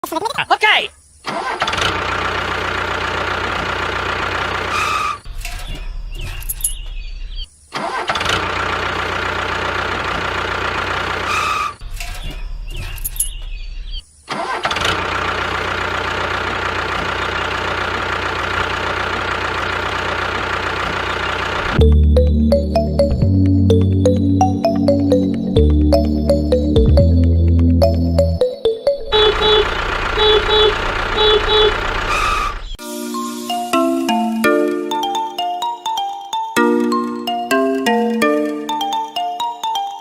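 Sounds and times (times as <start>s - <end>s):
engine running steadily: 6.3s - 6.9s, 8.4s - 11.8s, 14.8s - 24.8s, 29.0s - 32.8s.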